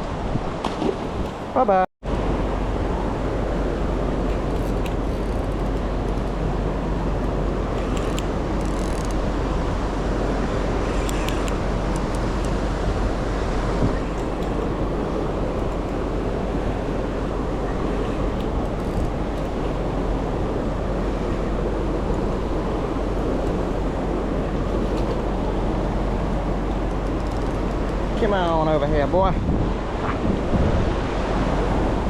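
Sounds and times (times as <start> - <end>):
city background noise: 0.0 - 32.0
river water roaring: 0.0 - 32.0
faint high ticks: 10.5 - 12.8, 15.4 - 16.0, 26.6 - 28.2.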